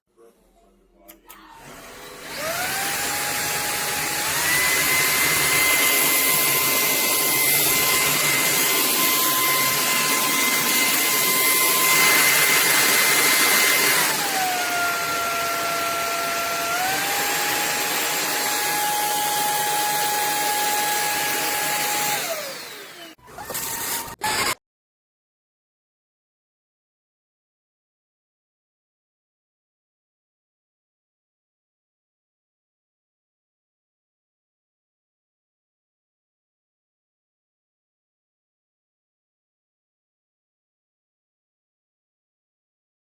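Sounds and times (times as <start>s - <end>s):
stick vacuum motor whine: 1.1s - 24.6s.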